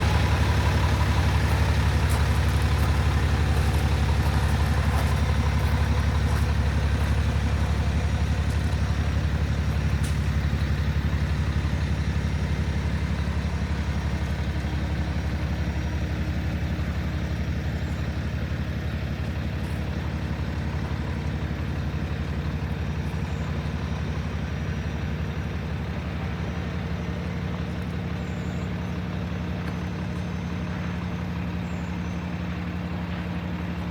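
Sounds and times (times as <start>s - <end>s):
diesel truck engine idling: 0.0s - 33.9s.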